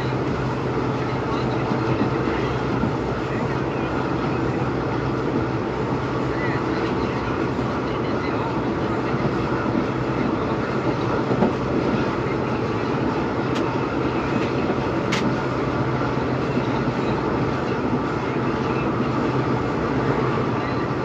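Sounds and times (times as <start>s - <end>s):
diesel engine hum: 0.0s - 21.0s
train rumble and rail noise: 0.0s - 21.0s.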